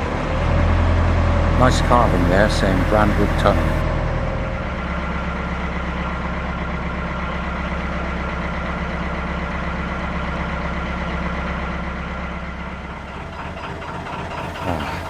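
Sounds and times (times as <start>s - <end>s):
boat engine chugging: 1.4s - 5.1s, 11.8s - 15.0s.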